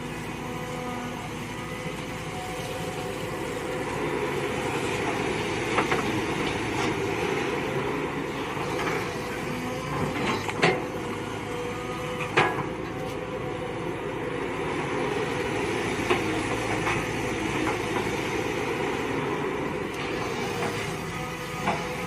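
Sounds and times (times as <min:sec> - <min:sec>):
excavator engine and hydraulics: 0:00.0 - 0:22.0.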